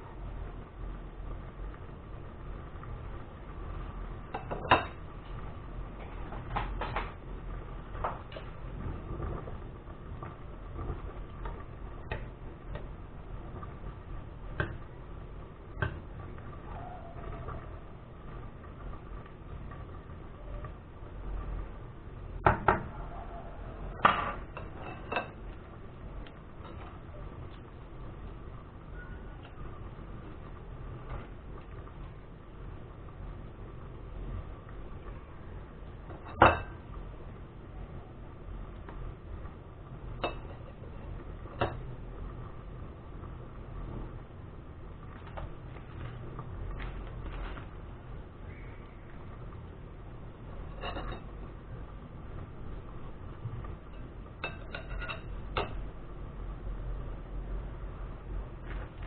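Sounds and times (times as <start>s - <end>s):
low steady hum: 0.0s - 59.0s
utensil clinking against a dish: 40.2s - 40.8s, 50.7s - 51.3s, 53.9s - 55.8s.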